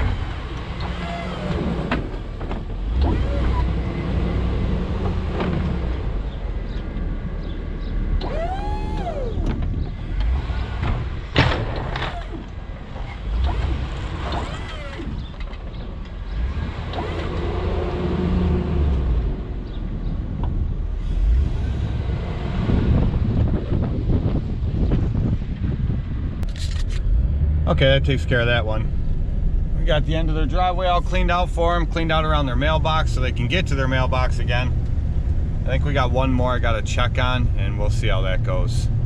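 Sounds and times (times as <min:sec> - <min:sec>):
hydraulic pump whining: 0:08.2 - 0:15.5.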